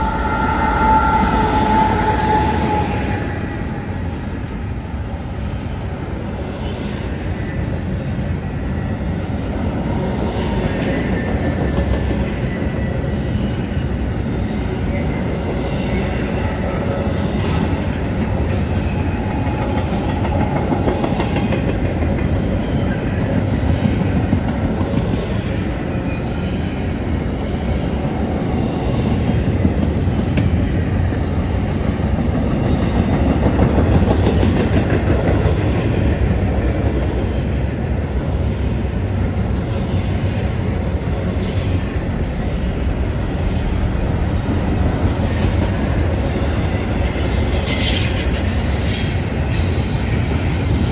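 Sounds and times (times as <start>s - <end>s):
train wheels rumbling on rails: 0.0s - 50.9s
wheel squeals: 47.0s - 50.9s.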